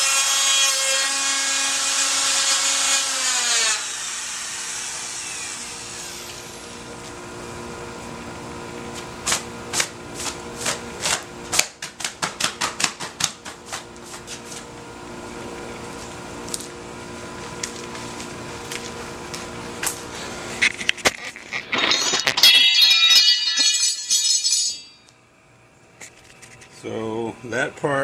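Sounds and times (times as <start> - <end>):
router winding down whine: 3.0 - 6.9
steady hum: 4.9 - 28.0.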